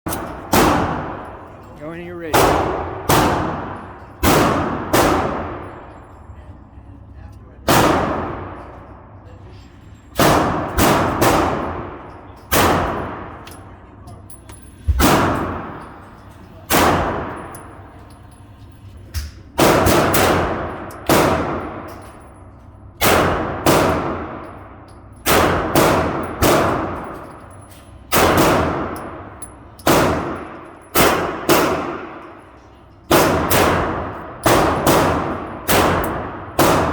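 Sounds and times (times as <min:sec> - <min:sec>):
pistol shots: 0:00.1 - 0:01.4, 0:02.2 - 0:05.8, 0:07.7 - 0:08.8, 0:10.2 - 0:13.7, 0:15.0 - 0:15.9, 0:16.7 - 0:17.6, 0:19.6 - 0:22.0, 0:23.0 - 0:27.2, 0:28.1 - 0:32.5, 0:33.1 - 0:36.9.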